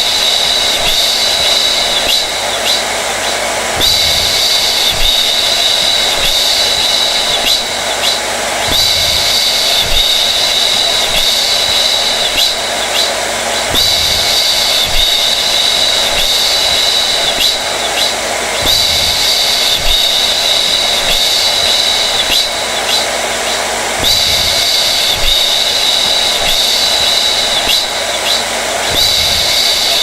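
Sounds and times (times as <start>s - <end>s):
hair dryer running: 0.0s - 30.0s.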